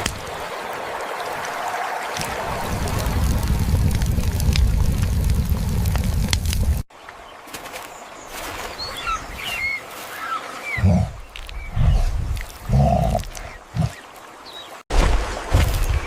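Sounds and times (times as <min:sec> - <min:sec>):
low rumble: 0:02.3 - 0:06.8
birds chirping: 0:07.0 - 0:14.8.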